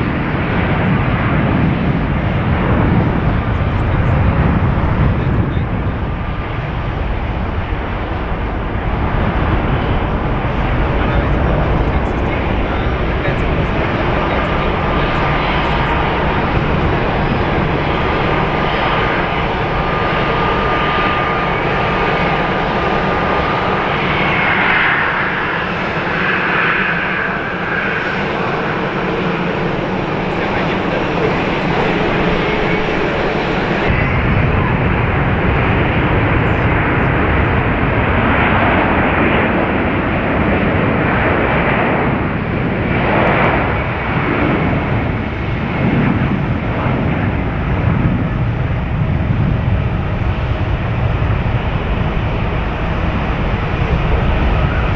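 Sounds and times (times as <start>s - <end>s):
jet engines running: 0.0s - 54.9s
thin steady whine: 9.8s - 37.6s.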